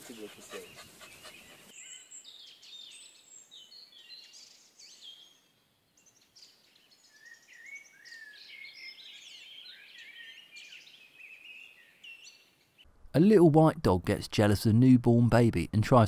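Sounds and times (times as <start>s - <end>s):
birds chirping: 0.0s - 5.4s.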